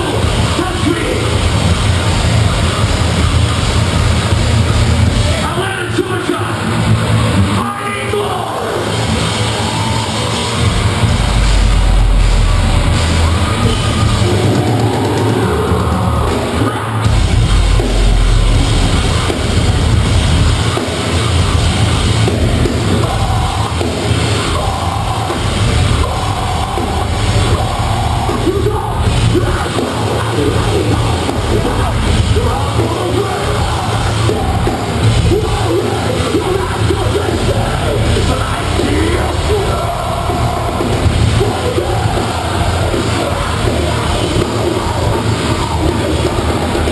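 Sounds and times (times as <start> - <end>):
distorted guitars: 0.0 - 46.9
drums: 0.0 - 46.9
heavy bass: 0.0 - 46.9
screamed vocals: 7.6 - 17.1, 23.0 - 46.9.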